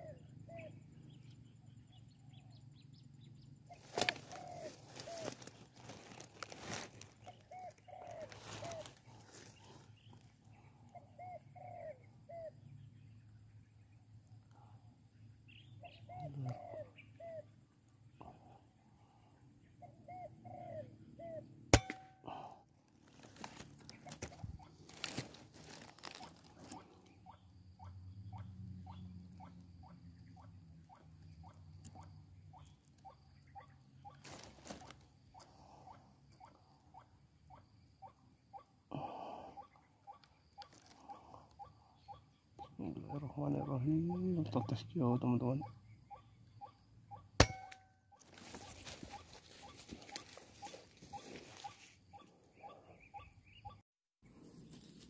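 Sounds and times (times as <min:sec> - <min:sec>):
bird hooting: 0:00.0 - 0:13.6, 0:14.4 - 0:53.8
waterhens calling: 0:03.7 - 0:10.2, 0:23.2 - 0:53.8.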